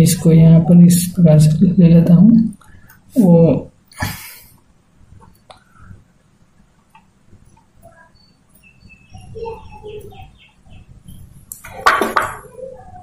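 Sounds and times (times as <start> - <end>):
birds chirping: 6.8 - 13.0.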